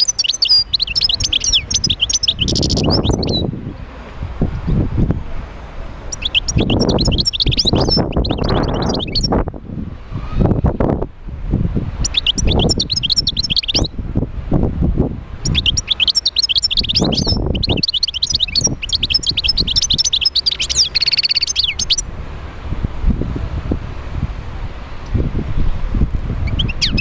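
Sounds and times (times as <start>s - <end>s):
goldfinch singing: 0.0s - 3.5s, 6.1s - 9.4s, 12.0s - 13.9s, 15.4s - 22.0s, 26.4s - 27.0s
low rumbling noise with thumps: 0.5s - 16.0s, 21.6s - 27.0s.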